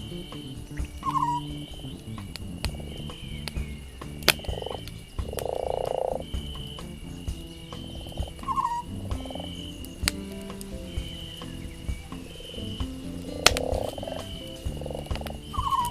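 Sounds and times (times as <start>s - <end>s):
animal low rattling call: 0.0s - 15.9s
campfire crackling and popping: 0.0s - 15.9s.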